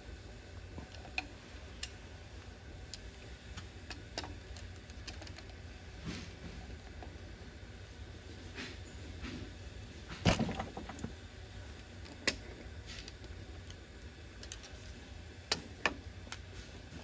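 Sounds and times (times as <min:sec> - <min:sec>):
steady low hum: 0:00.0 - 0:17.0
hard object clunk and rattle: 0:10.1 - 0:11.1.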